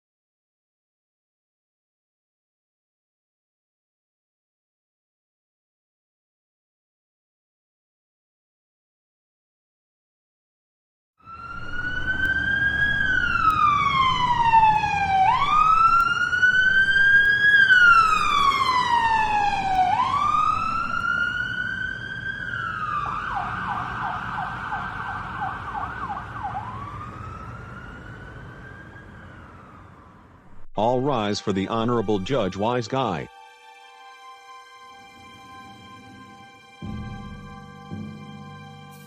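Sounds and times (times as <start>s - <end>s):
police siren wailing and yelping: 11.2s - 30.4s
low vehicle rumble: 11.3s - 31.1s.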